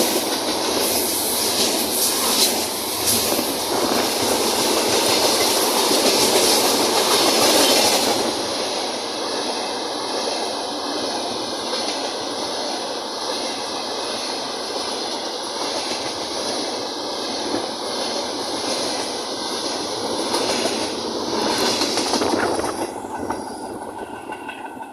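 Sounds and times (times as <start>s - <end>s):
freight train wheels clattering on rails: 0.0s - 24.9s.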